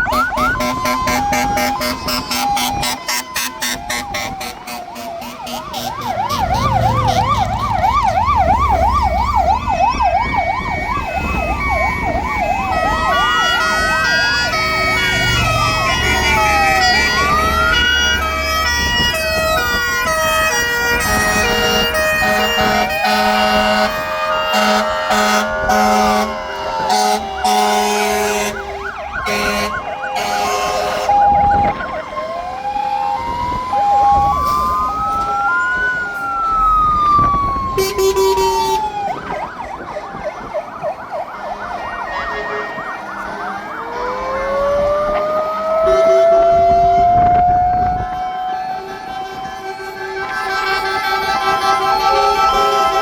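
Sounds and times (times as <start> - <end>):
fire engine sirens wailing: 0.0 - 53.0
truck engines rumbling: 0.0 - 53.0
short low horn blasts: 13.1 - 31.6.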